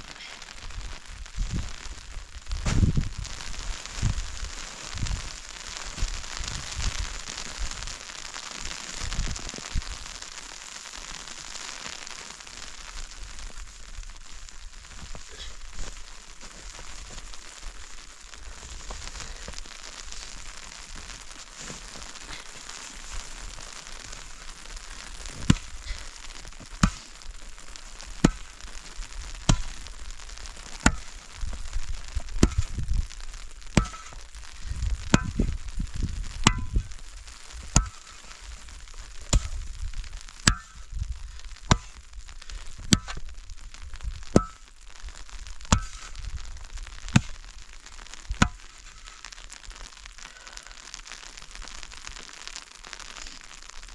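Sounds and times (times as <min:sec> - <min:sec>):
steady hiss with light crackling: 0:00.0 - 0:53.9.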